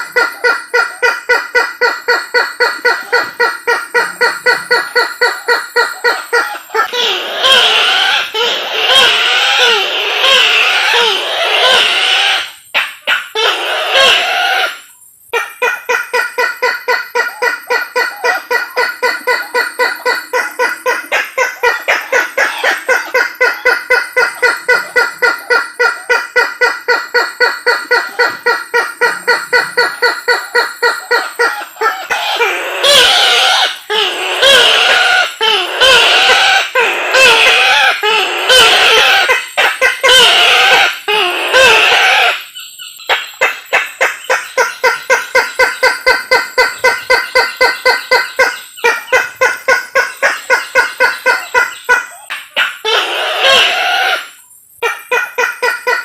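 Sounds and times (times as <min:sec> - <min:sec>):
waterhen calling repeated notes: 0:15.4 - 0:54.2.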